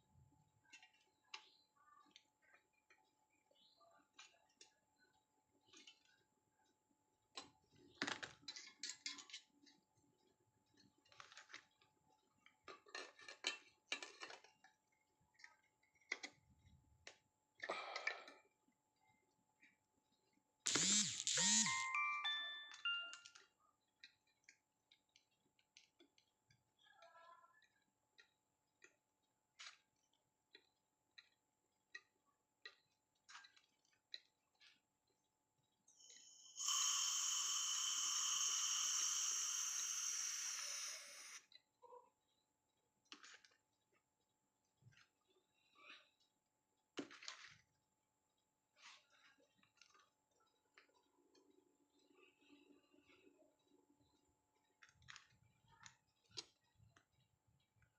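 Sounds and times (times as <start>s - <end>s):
small hard parts clicking: 20.7s - 21.9s.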